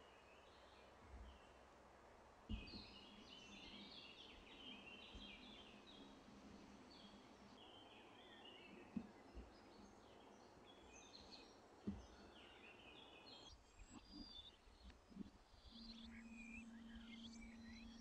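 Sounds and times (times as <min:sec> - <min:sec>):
high bird chirps: 0:15.6 - 0:18.0.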